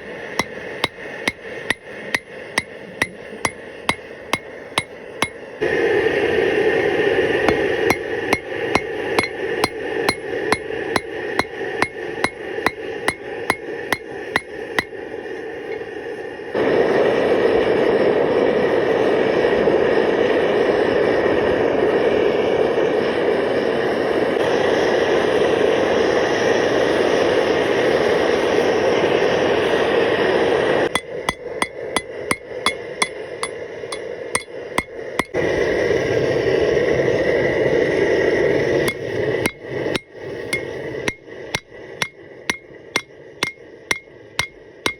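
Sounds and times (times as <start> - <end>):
hammer striking steel: 0.0 - 5.5, 7.4 - 15.0, 31.0 - 35.4, 38.8 - 44.9.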